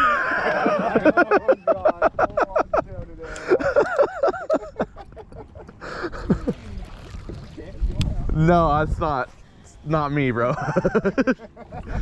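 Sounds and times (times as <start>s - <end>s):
people laughing: 0.0s - 6.9s, 10.4s - 12.0s.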